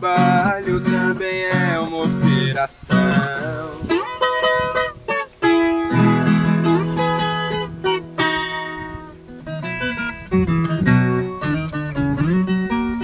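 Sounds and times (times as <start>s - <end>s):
acoustic strings strummed and plucked: 0.0s - 13.0s
low bass notes: 5.7s - 13.0s.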